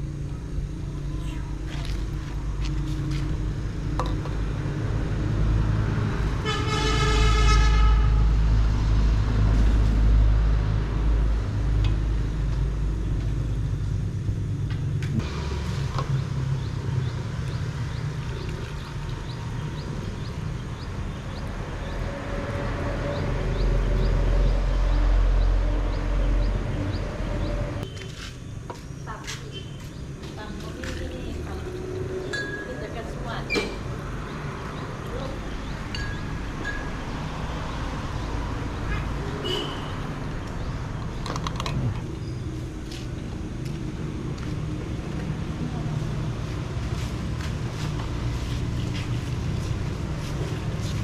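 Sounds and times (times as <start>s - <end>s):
vehicle horn: 6.4s - 8.4s, 39.4s - 40.1s.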